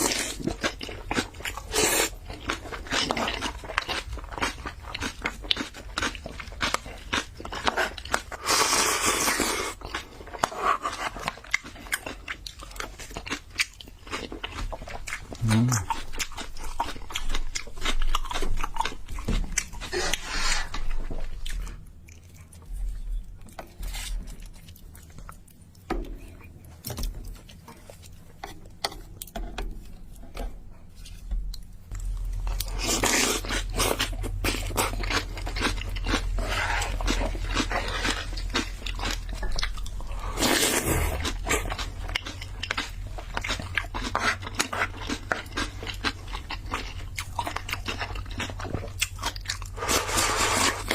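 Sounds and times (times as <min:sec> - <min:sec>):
person chewing noodles: 0:00.0 - 0:50.9.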